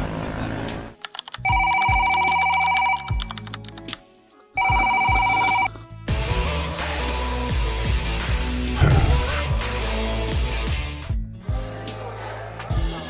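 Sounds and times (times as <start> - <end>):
music: 0.0 - 13.0
electronic ringing tone: 1.4 - 3.4, 4.6 - 5.8.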